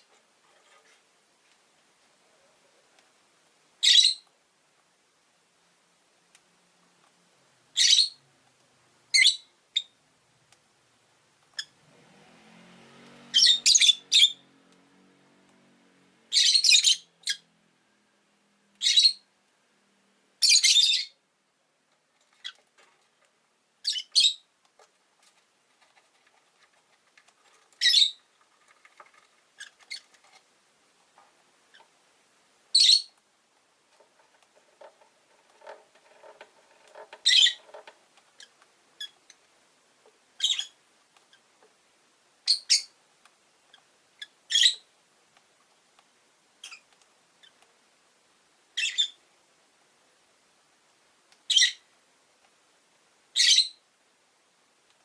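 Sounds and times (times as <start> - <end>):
lovebirds chirping: 3.8 - 4.3, 7.7 - 8.3, 9.1 - 10.0, 13.3 - 14.5, 16.3 - 17.5, 18.8 - 19.3, 20.4 - 21.2, 23.8 - 24.5, 27.6 - 30.2, 32.7 - 33.2, 35.7 - 39.4, 40.4 - 41.5, 42.4 - 43.0, 43.6 - 44.9, 48.8 - 49.2, 51.5 - 51.9, 53.4 - 53.8.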